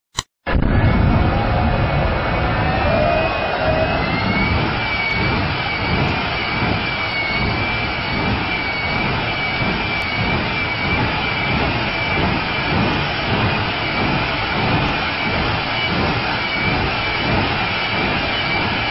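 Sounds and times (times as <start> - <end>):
jet engine rushing and whining: 0.2 - 18.9.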